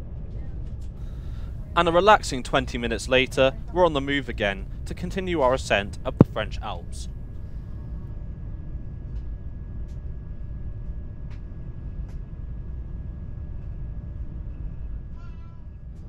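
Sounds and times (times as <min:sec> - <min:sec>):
train cabin rumble: 0:00.3 - 0:07.9
faint high whine: 0:01.0 - 0:08.0.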